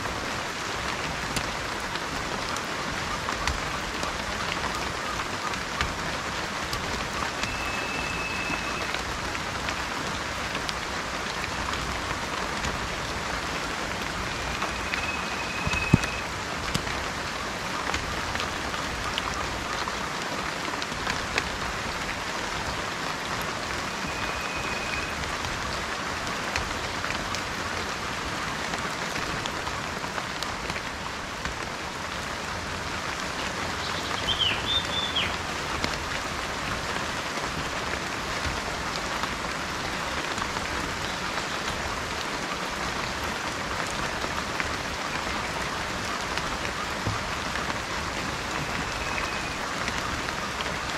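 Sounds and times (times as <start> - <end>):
steady rain falling: 0.0 - 50.9
raindrop ticks: 0.1 - 50.9
bird thin whistle: 7.4 - 8.9, 14.3 - 16.3, 23.9 - 25.2, 34.2 - 35.3
bird chirp: 14.4 - 16.3, 33.8 - 35.4.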